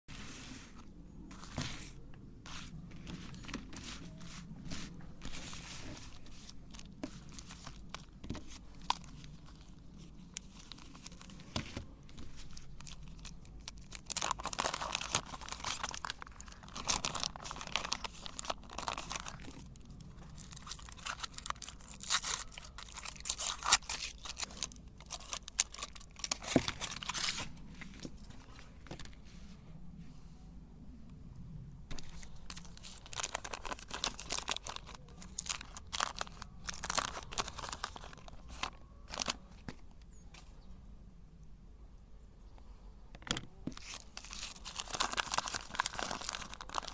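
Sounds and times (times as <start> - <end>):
chocolate wrappers crackling: 2.8 - 27.6, 31.9 - 39.8, 43.7 - 46.9.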